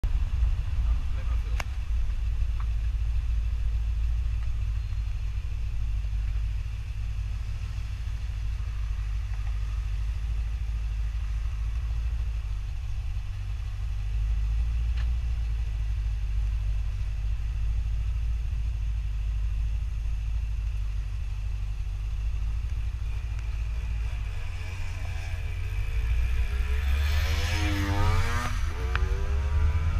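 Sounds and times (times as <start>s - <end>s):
sports car engine revving: 20.2s - 29.9s.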